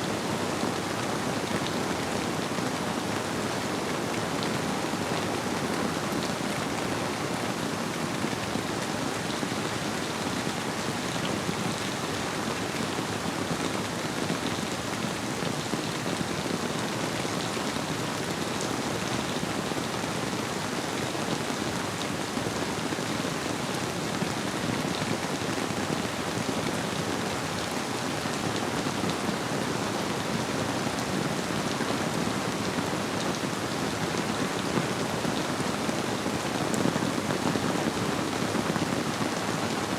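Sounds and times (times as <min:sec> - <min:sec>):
gently flowing river: 0:00.0 - 0:39.9
steady rainfall: 0:00.0 - 0:39.9.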